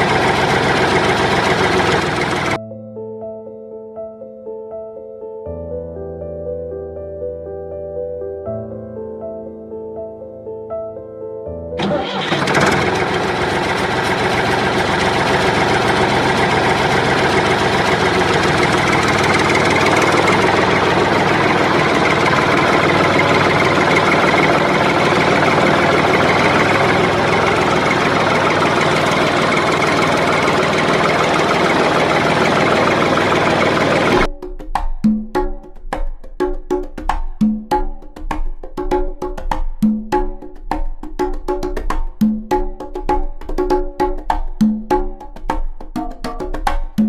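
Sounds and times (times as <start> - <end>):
motor running with fast pulse: 0.0 - 2.6, 12.2 - 34.3
soft music: 2.6 - 11.8.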